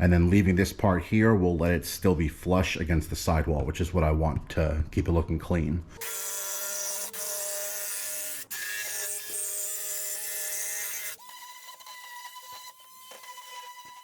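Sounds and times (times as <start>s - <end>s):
power tool cutting wood: 6.0s - 14.0s.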